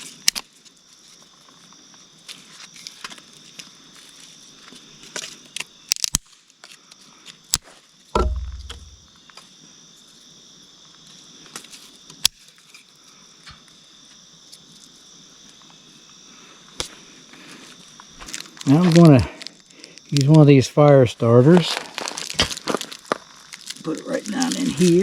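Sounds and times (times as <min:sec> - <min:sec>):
dull thump: 0:08.2 - 0:09.0
insect chirring: 0:08.2 - 0:11.6, 0:12.6 - 0:25.0.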